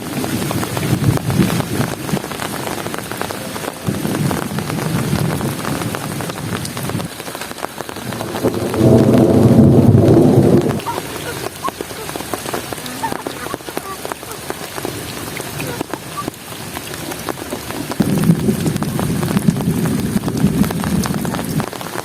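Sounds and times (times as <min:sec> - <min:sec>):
heavy rain tapping on surfaces: 0:00.0 - 0:22.0
low rumble: 0:08.0 - 0:10.8.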